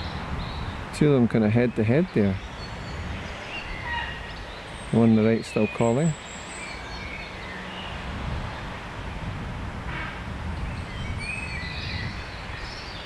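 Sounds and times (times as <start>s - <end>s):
small birds chirping: 0.0s - 9.3s, 10.4s - 13.0s
heron call: 3.6s - 4.4s.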